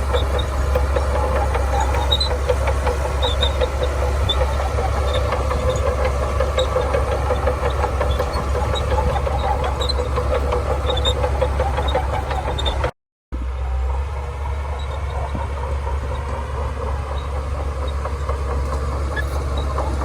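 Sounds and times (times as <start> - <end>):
bulldozer diesel engine running: 0.0 - 20.0
light ticking and clatter: 14.8 - 20.0.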